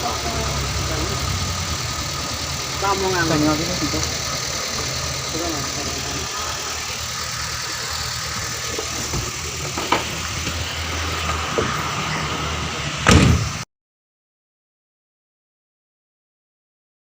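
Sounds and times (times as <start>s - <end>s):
car engine idling: 0.0s - 13.6s
loud knock: 13.0s - 13.6s.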